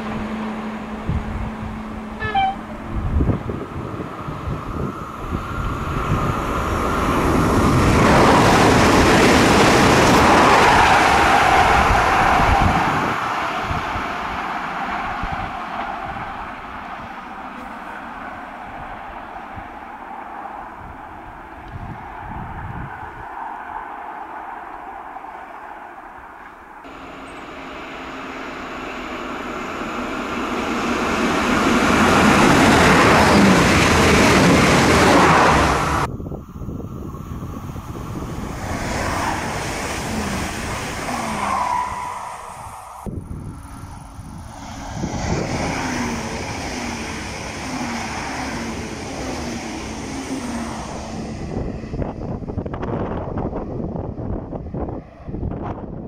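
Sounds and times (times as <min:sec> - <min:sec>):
diesel train passing: 0:00.0 - 0:56.0
evenly repeated train beats: 0:26.8 - 0:55.8.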